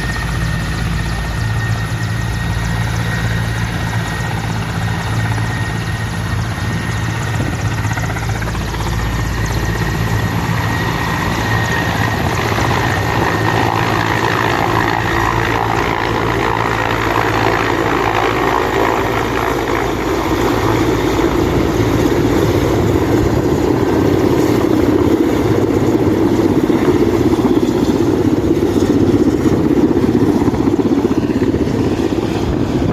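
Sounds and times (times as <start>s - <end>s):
helicopter rotor beat: 0.0s - 32.9s.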